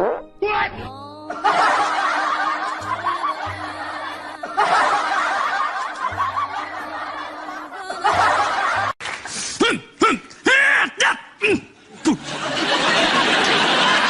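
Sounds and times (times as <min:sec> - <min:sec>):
background music: 0:00.0 - 0:09.8
people laughing: 0:01.2 - 0:14.0.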